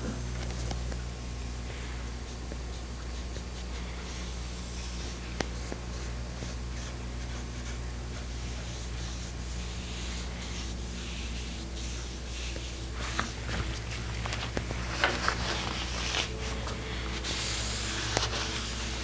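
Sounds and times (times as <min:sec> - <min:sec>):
low electrical hum: 0:00.0 - 0:19.0
hand rubbing wooden frame: 0:02.7 - 0:19.0.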